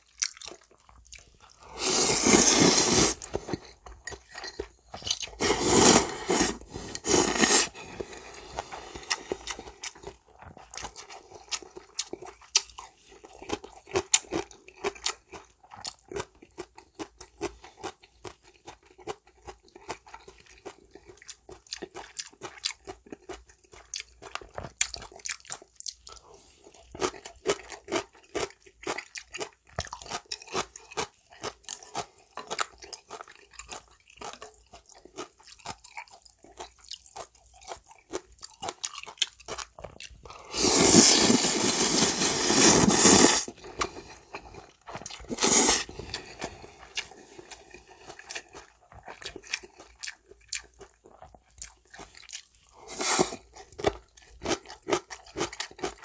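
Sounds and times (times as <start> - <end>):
chewing with crisp crunches: 0.0 - 56.0
loud slurp of noodles: 1.6 - 3.4, 5.4 - 9.5, 40.4 - 43.6, 45.3 - 46.2, 52.8 - 53.5.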